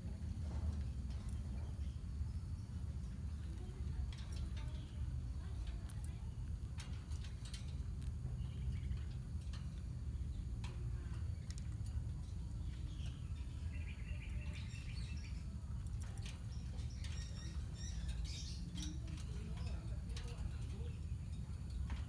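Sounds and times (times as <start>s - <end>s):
lovebirds chirping and chattering: 10.2s - 22.0s.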